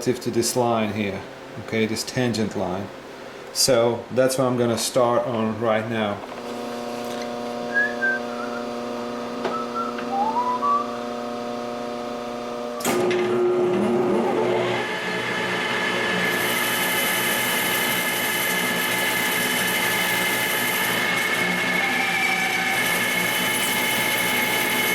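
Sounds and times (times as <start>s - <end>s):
metal lathe humming: 6.4s - 8.6s.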